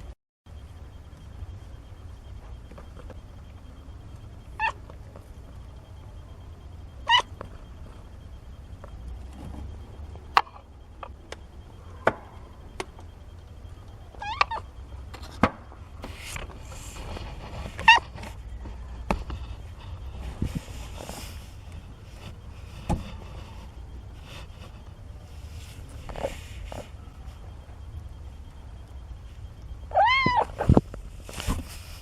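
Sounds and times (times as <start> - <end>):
kittens mewing: 4.5 - 4.9, 7.0 - 7.6, 14.2 - 14.7, 17.8 - 18.1, 29.9 - 30.8
rustling: 30.0 - 32.0.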